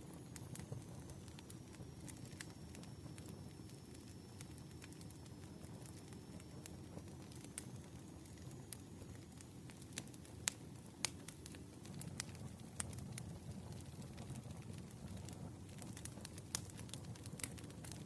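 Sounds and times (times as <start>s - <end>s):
wood fire crackling: 0.0s - 18.0s
sharp pops of burning wood: 10.0s - 18.0s.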